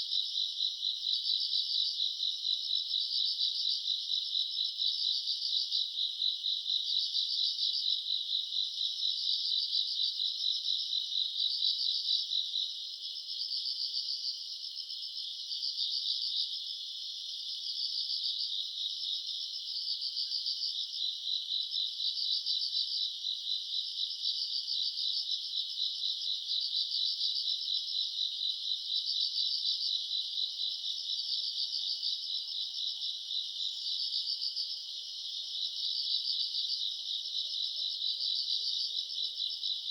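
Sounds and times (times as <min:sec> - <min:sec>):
crickets chirping: 0:00.1 - 0:39.9.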